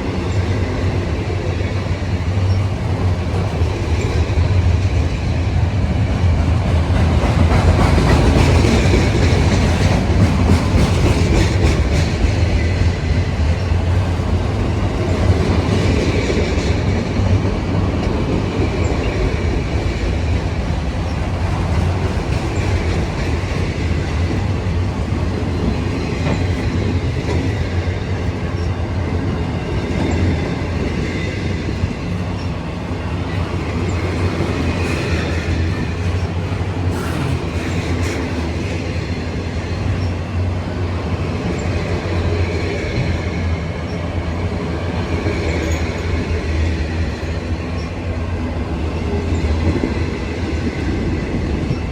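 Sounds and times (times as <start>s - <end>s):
train wheels rumbling and clacking: 0.0s - 51.9s
wheel squeal on rail: 36.9s - 38.3s.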